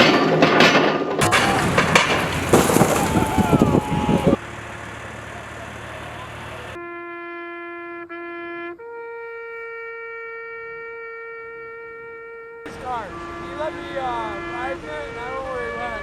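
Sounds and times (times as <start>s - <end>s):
horn-like note: 6.8s - 16.0s.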